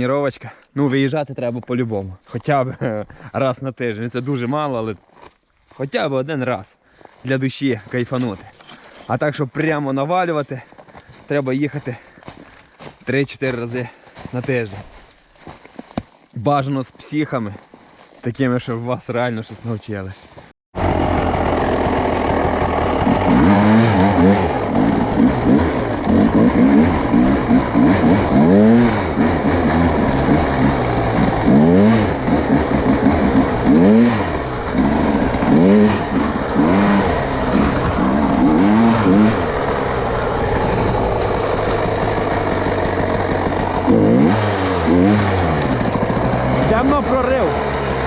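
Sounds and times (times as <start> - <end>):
off-road vehicle engine revving: 20.8 - 48.0.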